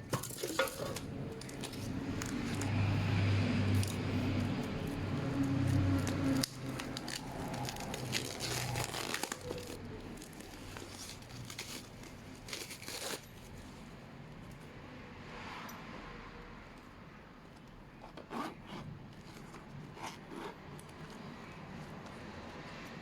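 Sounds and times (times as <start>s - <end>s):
packaging crinkling and rustling: 0.1s - 3.0s, 3.7s - 13.7s.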